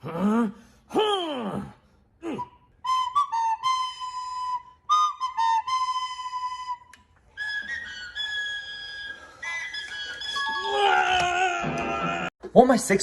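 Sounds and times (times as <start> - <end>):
recorder playing: 2.8 - 10.8.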